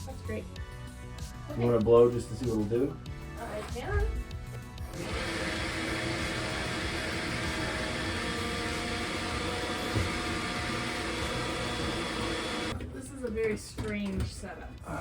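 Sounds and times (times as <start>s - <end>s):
electric air blower running: 5.0s - 12.8s.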